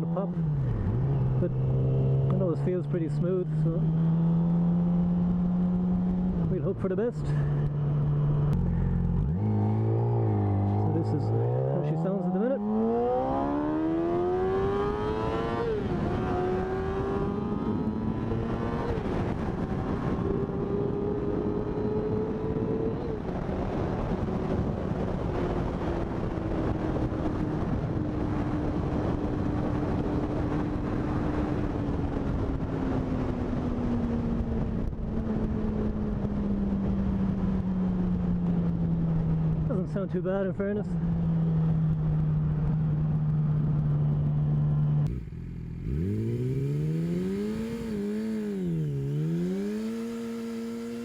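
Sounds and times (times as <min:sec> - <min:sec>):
motorcycle engine revving: 0:00.0 - 0:06.7, 0:07.3 - 0:39.8, 0:41.1 - 0:51.0.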